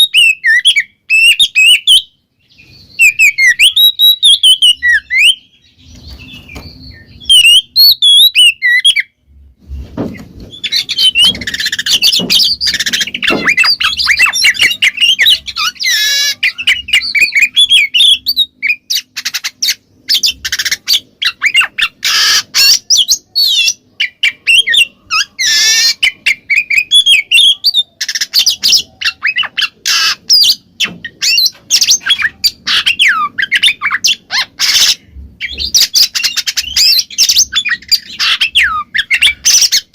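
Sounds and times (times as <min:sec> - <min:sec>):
bird singing varied whistles: 0:02.7 - 0:05.5, 0:06.2 - 0:09.1.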